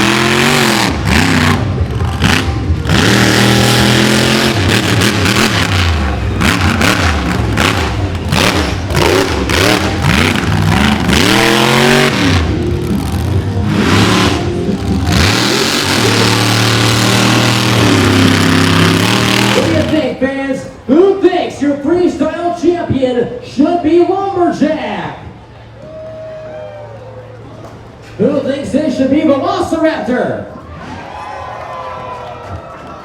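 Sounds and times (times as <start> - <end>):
truck engine revving: 0.0 - 20.9.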